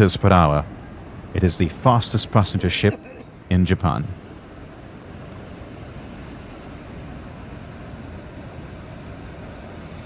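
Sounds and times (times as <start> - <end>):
high turbine whistle: 4.1 - 10.0.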